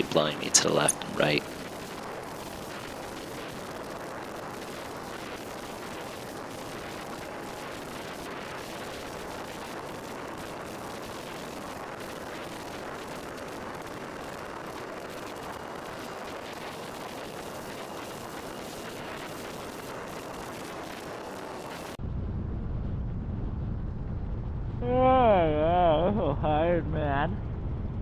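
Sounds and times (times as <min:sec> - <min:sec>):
deep rumble: 0:22.0 - 0:28.0.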